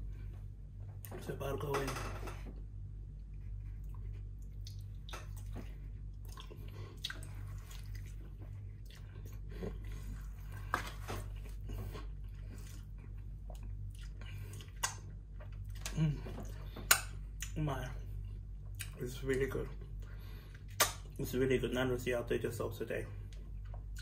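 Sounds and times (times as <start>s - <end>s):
steady low hum: 0.0s - 24.0s
chewing and biting: 3.2s - 17.6s.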